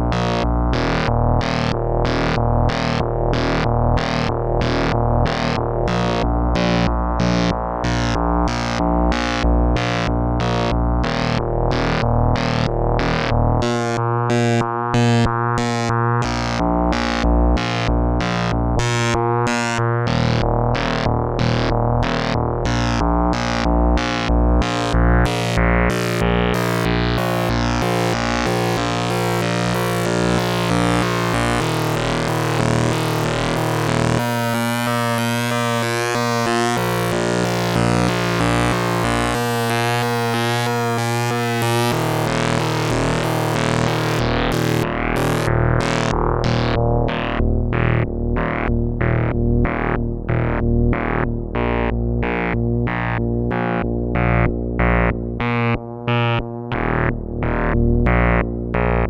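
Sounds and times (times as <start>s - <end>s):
low synthesizer bass tone: 0.0s - 59.0s
pulsing gated synth pattern: 0.0s - 59.0s
held synth notes: 25.2s - 46.6s.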